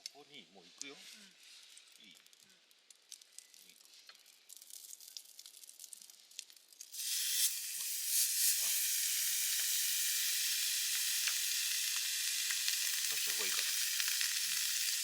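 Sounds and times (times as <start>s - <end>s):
faint crackling: 0.0s - 6.9s
meat sizzling in a hot pan: 3.4s - 15.0s.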